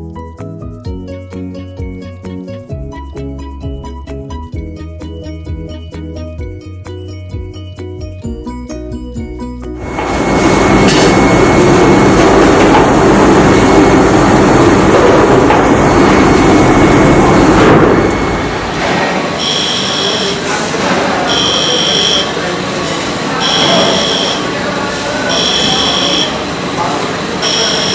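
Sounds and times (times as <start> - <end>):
electronic warning beeps: 9.8 - 22.6, 23.3 - 27.9
industrial machinery running: 9.8 - 27.9.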